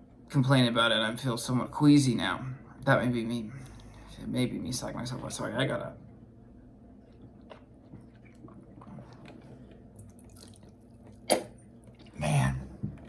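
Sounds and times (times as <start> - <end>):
wet mouth sounds: 7.2 - 12.3
person spitting: 11.2 - 12.6.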